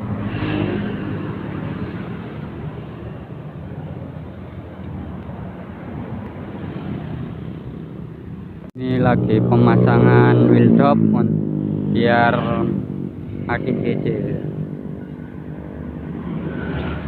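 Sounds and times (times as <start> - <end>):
constant background noise: 0.0 - 17.0.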